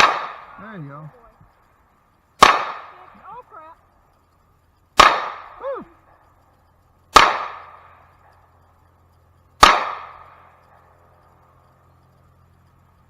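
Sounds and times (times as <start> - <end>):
pistol shots with echo: 0.0 - 0.6, 2.4 - 3.1, 5.0 - 5.6, 7.1 - 8.2, 9.6 - 10.8.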